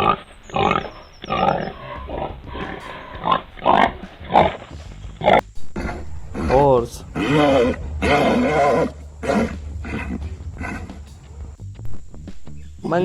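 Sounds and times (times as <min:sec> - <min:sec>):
pig grunting: 0:00.0 - 0:11.6.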